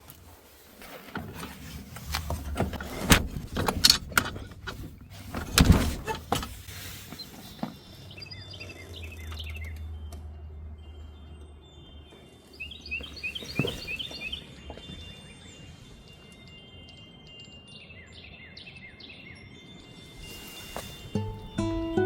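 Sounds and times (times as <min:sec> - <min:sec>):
bird chirps: 0:06.7 - 0:21.7.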